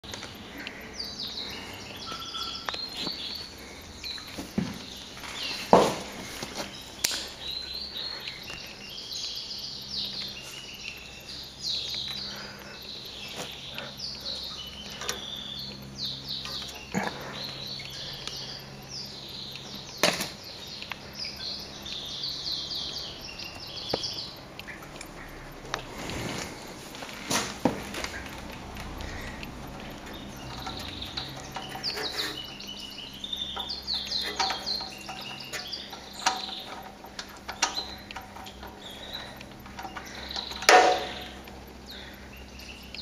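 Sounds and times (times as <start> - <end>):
faint low hum: 0.0 - 43.0
small birds chirping: 0.0 - 43.0
sharp knocks: 40.7 - 41.3.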